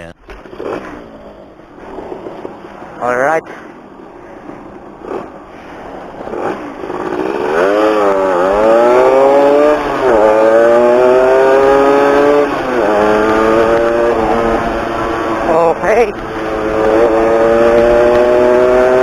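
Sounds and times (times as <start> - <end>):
motorcycle engine accelerating: 4.9 - 19.0.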